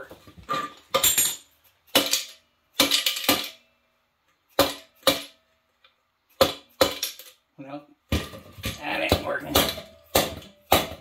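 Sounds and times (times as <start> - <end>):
hand tools striking metal: 8.8 - 11.0.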